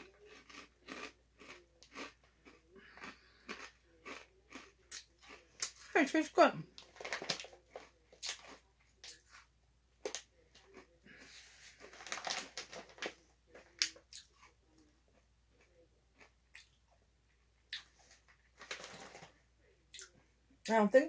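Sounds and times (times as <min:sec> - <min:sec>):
chewing crunchy snacks: 0:00.0 - 0:05.9, 0:06.8 - 0:16.8
plastic snack bag crinkling: 0:06.8 - 0:08.6, 0:11.2 - 0:14.0, 0:18.0 - 0:19.3.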